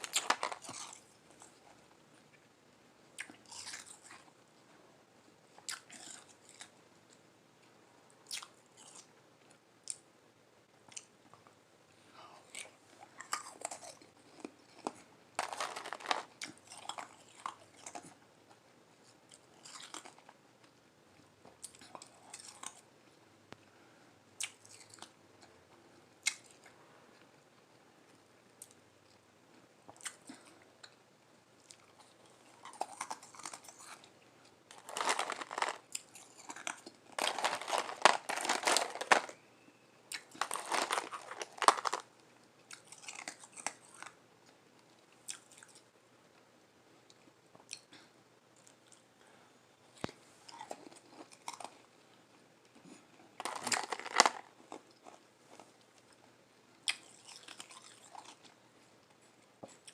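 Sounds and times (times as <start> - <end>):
person crunching ice: 15.4 - 17.2, 34.7 - 39.4, 40.2 - 42.0, 53.4 - 54.4.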